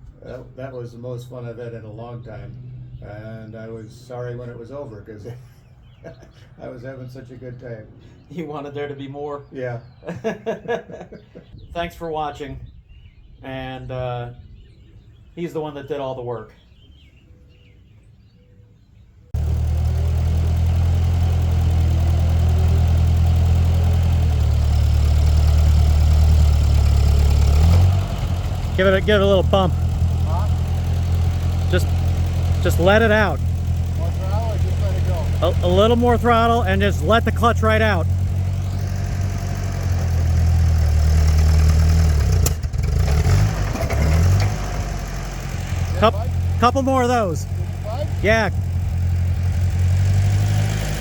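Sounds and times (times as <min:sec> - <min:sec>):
tractor engine idling: 0:19.4 - 0:51.0.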